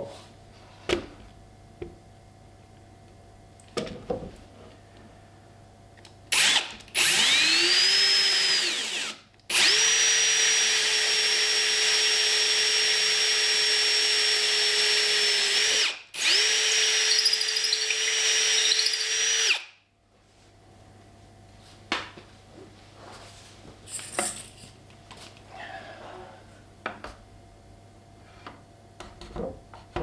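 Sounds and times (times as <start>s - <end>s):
power drill whining: 6.3s - 19.7s.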